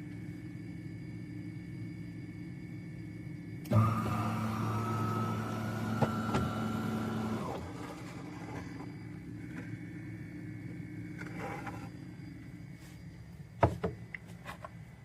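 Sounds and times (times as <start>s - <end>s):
espresso machine pump humming: 3.6s - 12.5s.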